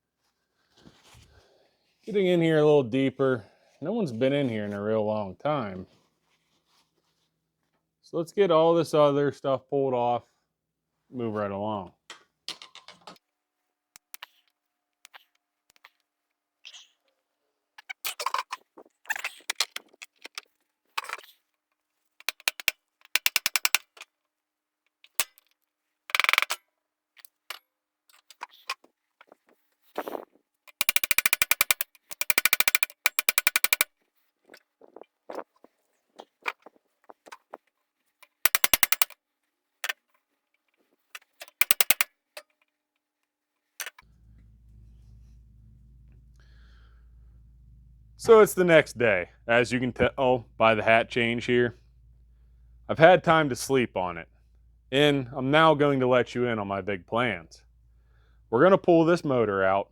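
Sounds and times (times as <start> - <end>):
tool rattling bolts off: 22.2 - 24.0, 30.7 - 33.9, 38.2 - 39.2, 41.2 - 42.1
faint low hum: 44.0 - 59.0.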